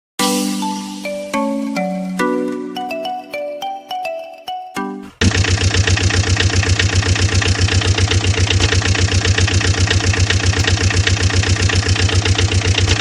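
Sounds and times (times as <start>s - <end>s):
engine idling with rapid chugging: 5.2s - 13.0s.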